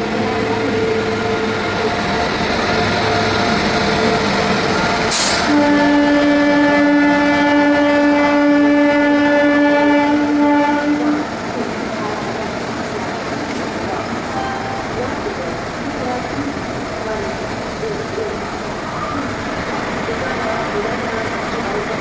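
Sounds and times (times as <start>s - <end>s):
train coaches rumbling on track: 0.0s - 22.0s
brief hiss: 5.1s - 5.5s
locomotive horn blast: 5.1s - 11.3s.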